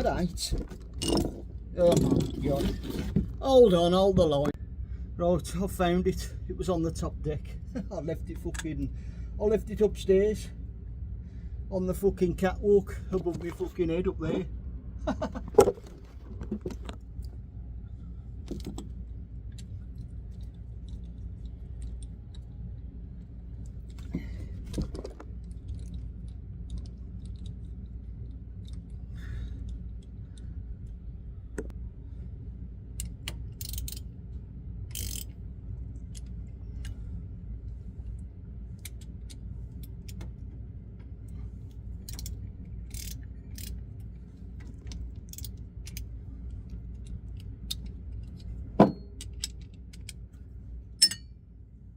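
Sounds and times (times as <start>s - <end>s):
steady low hum: 0.0s - 51.9s
metallic clicks of hand tools: 33.0s - 34.0s, 34.9s - 35.3s, 42.0s - 43.8s, 47.0s - 50.2s, 51.0s - 51.3s
ratchet clicking: 33.0s - 34.1s, 34.9s - 35.4s, 42.0s - 44.1s, 44.9s - 46.1s.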